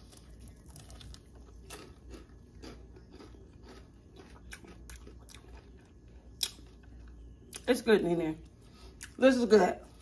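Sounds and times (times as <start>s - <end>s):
chewing crunches: 0.0s - 7.7s.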